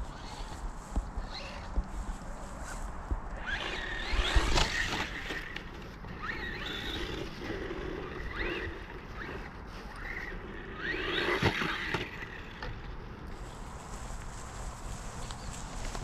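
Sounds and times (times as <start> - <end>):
electric motor whining: 3.4 - 12.7.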